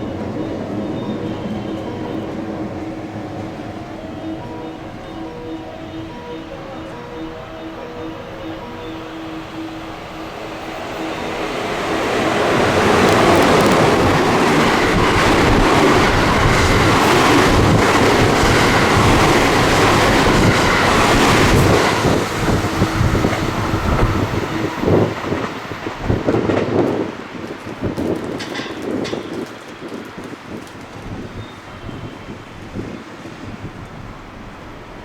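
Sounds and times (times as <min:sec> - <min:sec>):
train passing: 0:00.0 - 0:35.0
wheel and rail noise: 0:00.0 - 0:35.0
train wheels clacking and thumping: 0:11.5 - 0:31.3.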